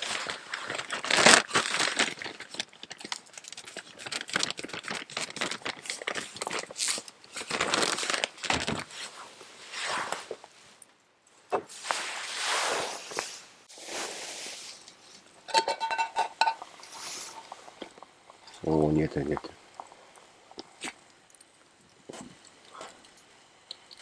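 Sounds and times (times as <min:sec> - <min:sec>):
fire hissing: 0:11.7 - 0:15.4, 0:16.3 - 0:23.0.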